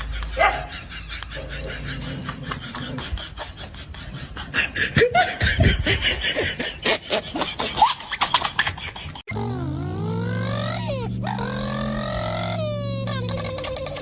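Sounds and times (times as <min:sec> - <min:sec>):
people laughing: 0:00.0 - 0:09.3.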